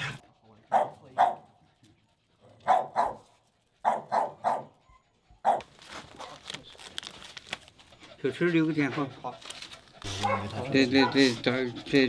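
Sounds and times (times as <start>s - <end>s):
dog barking: 0.7s - 1.6s, 2.6s - 4.8s, 5.4s - 6.4s, 10.1s - 11.4s.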